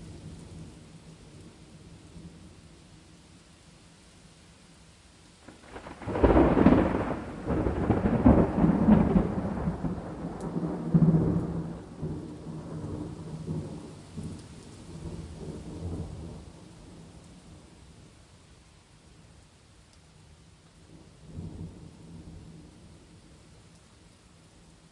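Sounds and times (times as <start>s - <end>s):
faint rain hiss: 0.0s - 24.9s
thunder rumbling: 5.4s - 17.7s.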